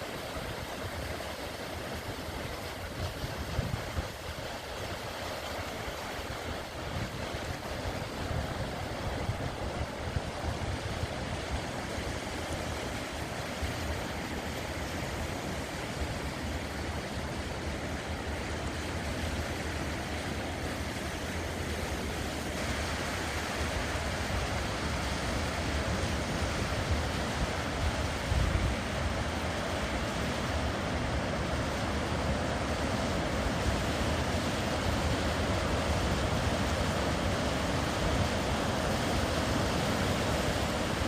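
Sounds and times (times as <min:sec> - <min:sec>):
surf washing onto beach: 0:00.0 - 0:41.0
wind rumbling on microphone: 0:02.0 - 0:15.7.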